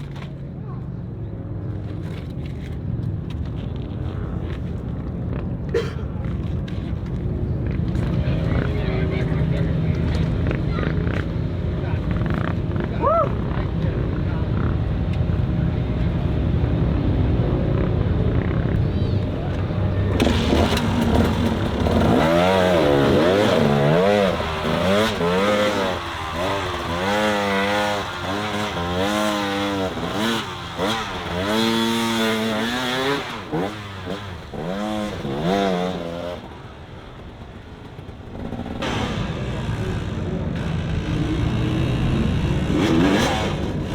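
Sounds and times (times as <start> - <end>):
off-road vehicle engine revving: 7.5 - 43.9.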